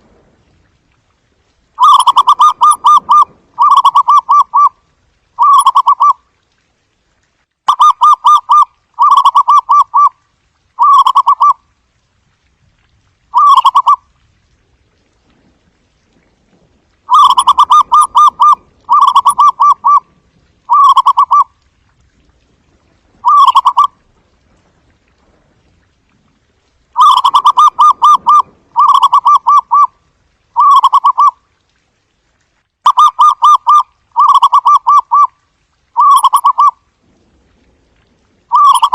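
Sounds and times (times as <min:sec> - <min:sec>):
dove cooing: 0:01.8 - 0:04.7, 0:05.4 - 0:06.2, 0:13.4 - 0:14.0, 0:17.1 - 0:20.1, 0:20.7 - 0:21.5, 0:23.2 - 0:23.9, 0:27.0 - 0:29.9, 0:30.6 - 0:31.3, 0:36.0 - 0:36.7, 0:38.5 - 0:38.9.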